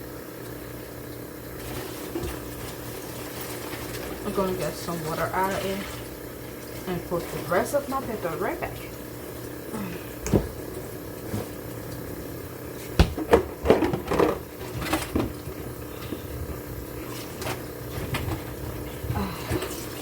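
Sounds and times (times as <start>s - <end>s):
steady hum: 0.0s - 20.0s
pots and containers clattering: 12.9s - 16.3s.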